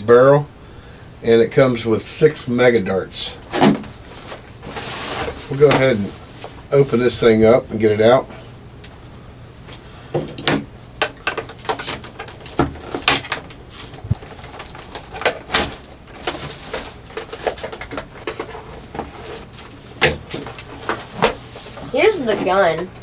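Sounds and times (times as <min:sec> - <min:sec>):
packaging crinkling: 0:03.4 - 0:06.6, 0:11.5 - 0:21.9.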